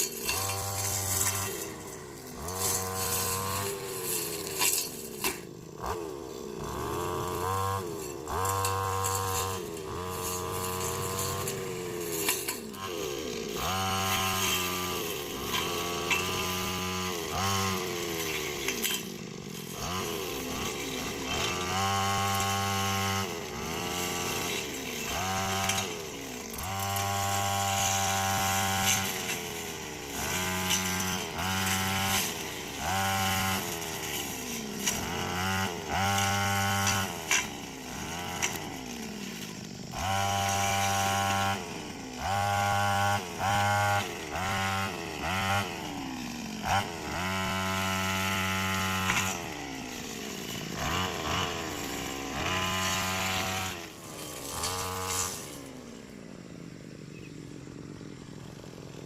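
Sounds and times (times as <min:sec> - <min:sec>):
chainsaw engine revving: 0:00.0 - 0:59.0.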